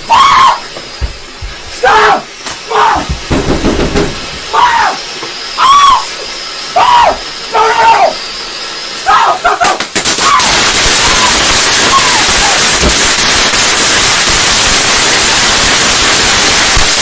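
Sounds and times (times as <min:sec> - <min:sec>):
firework hissing and crackling: 0:00.0 - 0:17.0
faint shouts: 0:01.8 - 0:03.1, 0:09.0 - 0:12.6
firework pops: 0:09.6 - 0:17.0.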